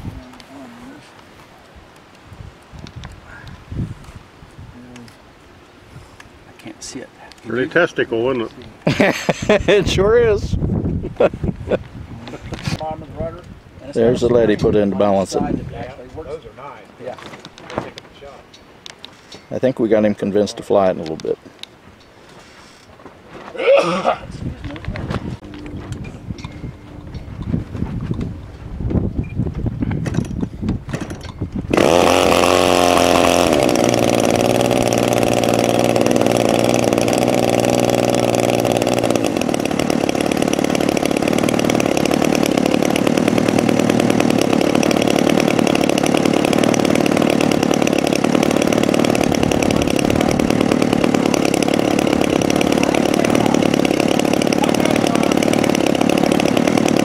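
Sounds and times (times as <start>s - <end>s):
model airplane engine running: 31.7s - 57.0s.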